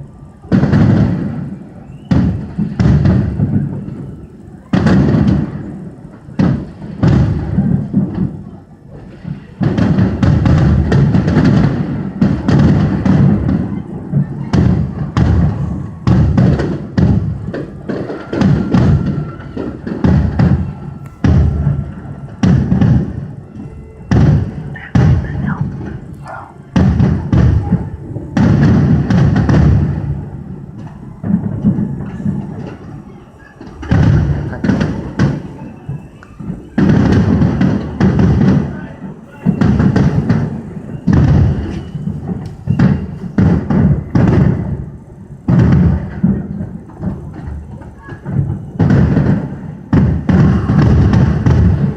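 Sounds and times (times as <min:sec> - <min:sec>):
fireworks shells booming: 0:00.0 - 0:51.9.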